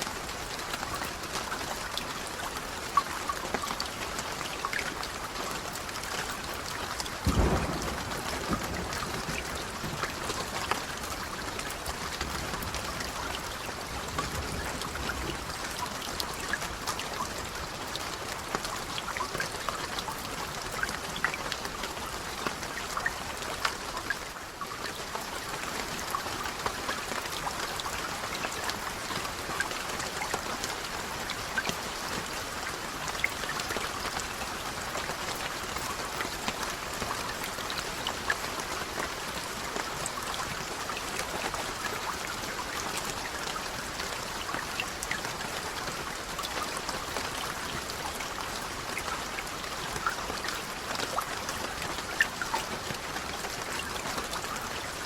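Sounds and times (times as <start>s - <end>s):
steady rain: 0.0s - 55.0s
low rumble of thunder: 7.2s - 11.4s.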